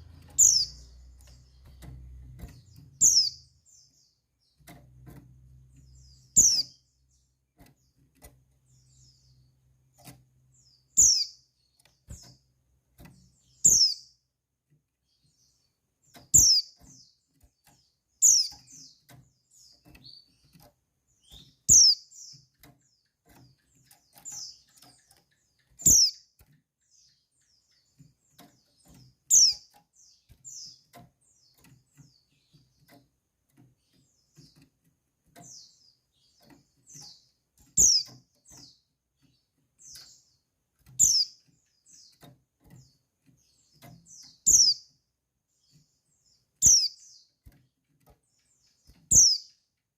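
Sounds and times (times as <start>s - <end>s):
soft short bird notes: 0.0s - 3.5s
bird high chirps: 0.0s - 12.4s, 13.1s - 14.2s, 15.1s - 33.0s, 35.4s - 45.0s, 45.6s - 47.6s, 48.4s - 49.6s.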